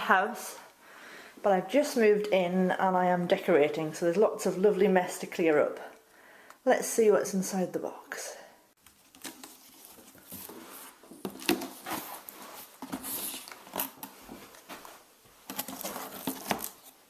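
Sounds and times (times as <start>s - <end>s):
packaging rustling: 8.9s - 17.0s.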